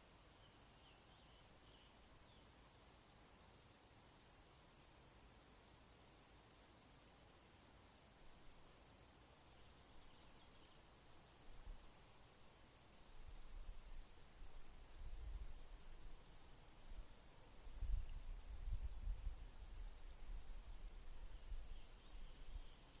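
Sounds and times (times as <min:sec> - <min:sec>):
cricket-like insect chirping: 0:00.0 - 0:23.0
wind rumbling on microphone: 0:13.2 - 0:16.2, 0:16.8 - 0:22.8.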